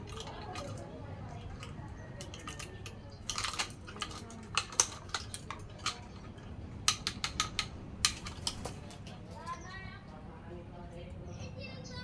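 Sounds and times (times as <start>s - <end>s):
hard objects clicking and tapping: 0.0s - 9.2s.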